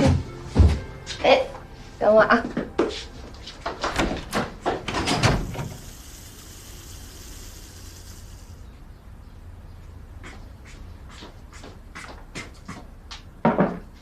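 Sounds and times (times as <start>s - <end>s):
steady hiss: 5.3s - 8.9s.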